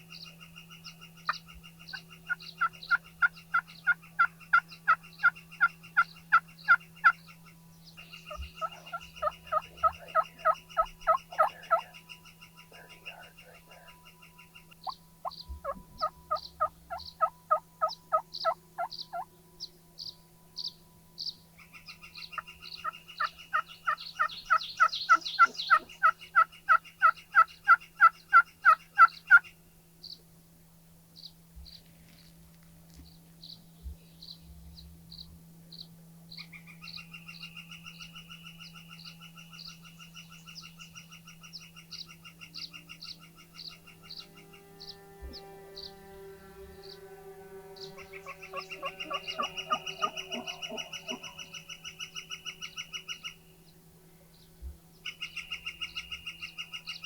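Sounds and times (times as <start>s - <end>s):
turkey yelping: 2.3s - 7.2s, 8.3s - 12.0s, 14.8s - 19.3s, 22.3s - 29.5s, 48.0s - 53.4s.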